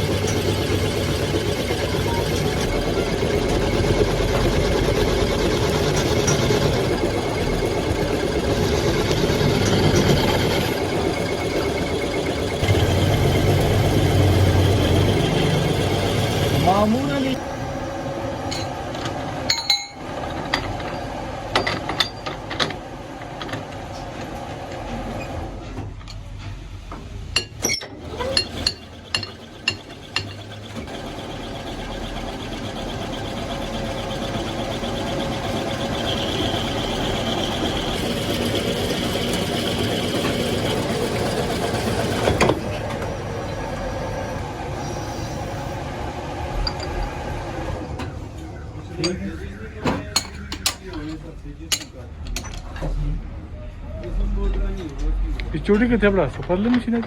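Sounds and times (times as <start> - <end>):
high machine whine: 0.0 - 22.4, 28.7 - 49.8
workshop machinery running: 0.0 - 57.0
metallic clanks and knocks: 18.5 - 22.8.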